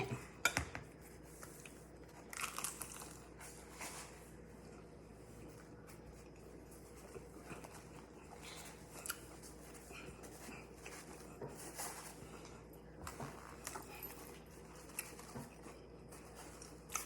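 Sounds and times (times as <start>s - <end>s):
chewing crispy food: 1.4s - 3.7s, 12.2s - 17.0s.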